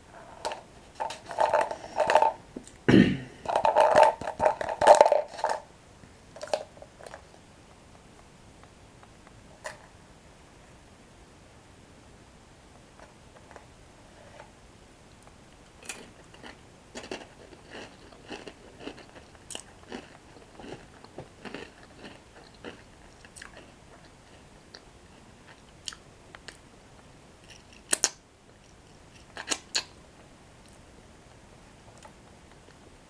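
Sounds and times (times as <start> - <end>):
chewing crunchy bread sticks: 15.6 - 26.6.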